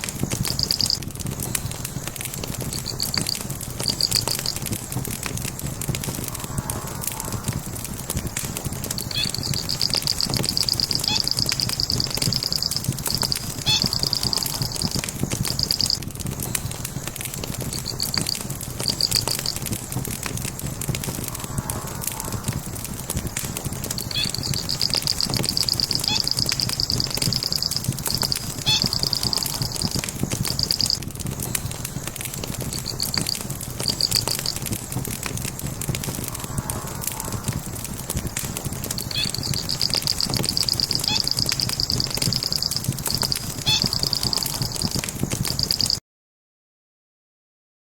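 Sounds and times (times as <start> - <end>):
burning logs crackling and popping: 0.0 - 46.0
high chirping trill: 0.4 - 1.0, 2.7 - 4.7, 8.9 - 16.0, 17.7 - 19.7, 23.9 - 31.0, 32.7 - 34.7, 38.9 - 46.0.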